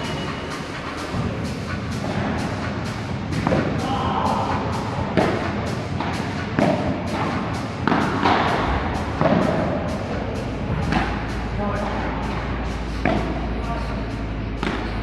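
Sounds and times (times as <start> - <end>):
music with quick beat: 0.0 - 14.8
ball hit by rackets: 3.4 - 3.8, 5.1 - 9.7, 10.8 - 11.3, 13.0 - 13.4, 14.6 - 15.0.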